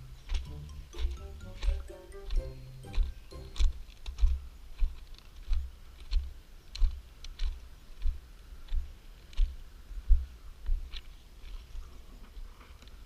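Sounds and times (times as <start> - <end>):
music: 0.0 - 3.8
footsteps walking: 0.0 - 12.0.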